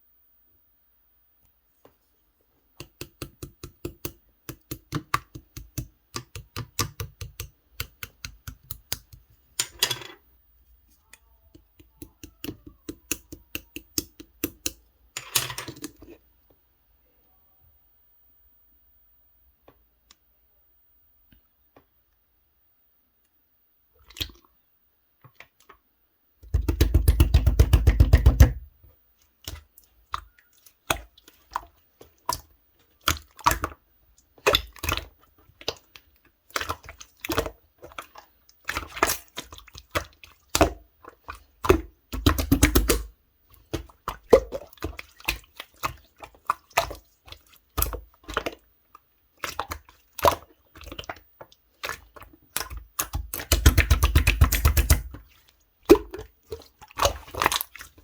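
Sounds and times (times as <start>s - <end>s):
slime squished by hand: 36.5s - 48.6s, 51.8s - 58.0s.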